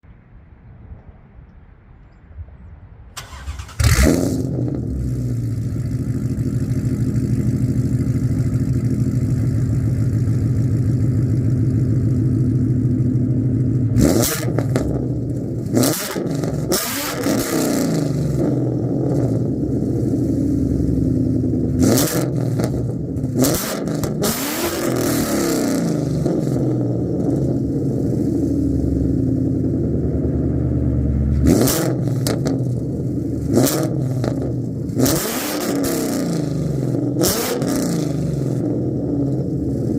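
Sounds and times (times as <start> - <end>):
car engine idling and revving: 3.2 - 39.9.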